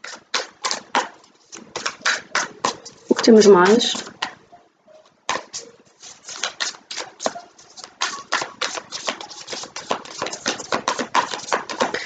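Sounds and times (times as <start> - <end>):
cards being shuffled by hand: 0.0 - 4.4, 5.3 - 12.0.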